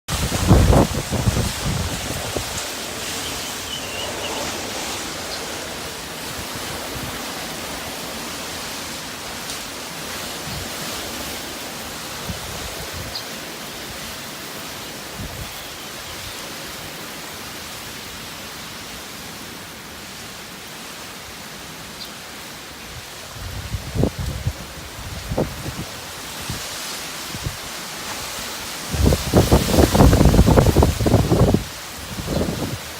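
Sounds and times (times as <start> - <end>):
storm wind rushing: 0.1 - 8.4, 23.3 - 27.6, 28.8 - 32.9
wind gusts buffeting microphone: 0.1 - 14.2, 22.9 - 32.9
rain: 0.1 - 32.9.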